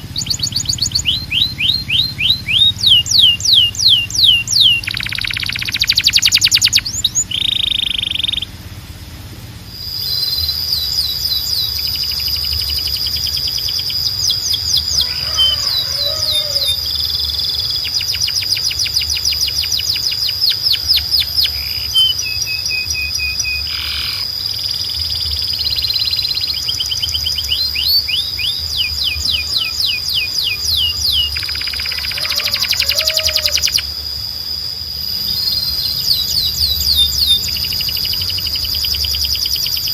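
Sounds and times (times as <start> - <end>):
canary singing fast trills: 0.0 - 39.9
high steady whistled note: 9.7 - 16.2.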